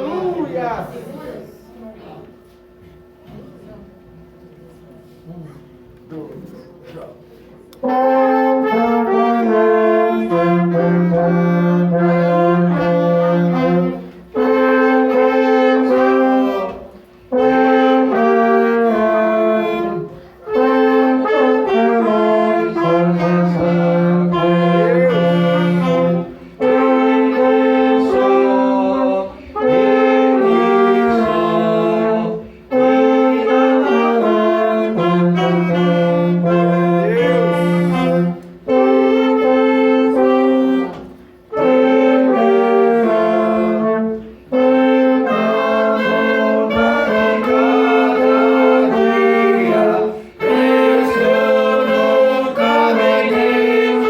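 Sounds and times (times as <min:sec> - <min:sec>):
wind band playing a hymn: 0:07.8 - 0:54.0.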